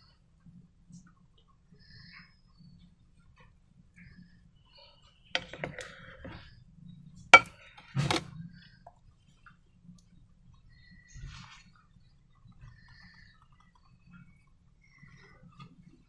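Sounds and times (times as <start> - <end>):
clicks and knocks of containers: 5.4 - 6.4, 7.4 - 8.3.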